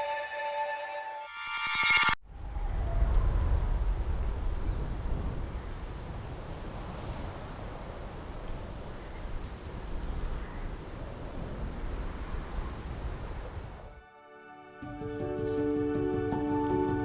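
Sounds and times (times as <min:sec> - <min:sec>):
wind buffeting microphone: 0:02.2 - 0:14.0.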